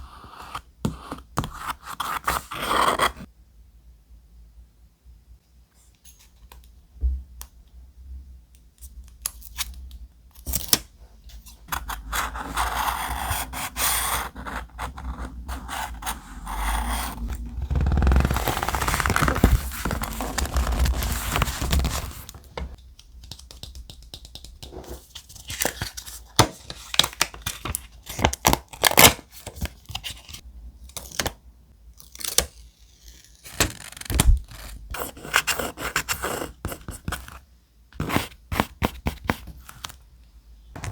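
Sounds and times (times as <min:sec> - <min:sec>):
paper scraping and rustling: 0:12.1 - 0:22.8
paper tearing: 0:16.6 - 0:22.7.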